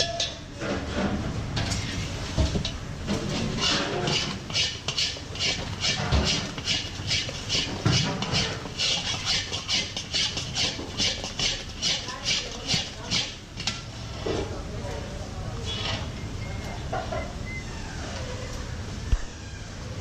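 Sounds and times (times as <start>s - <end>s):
spatula scraping a pan: 3.1s - 14.5s.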